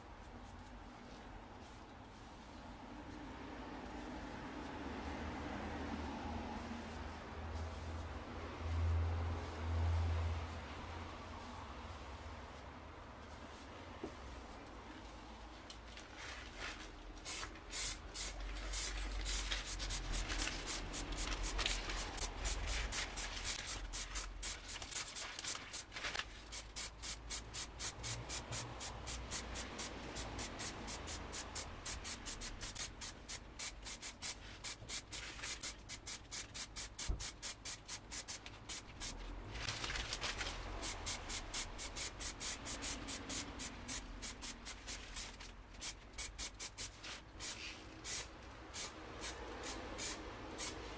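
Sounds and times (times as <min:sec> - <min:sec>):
aerosol spray can hissing: 0:17.3 - 0:25.9, 0:26.5 - 0:39.2, 0:40.8 - 0:50.8.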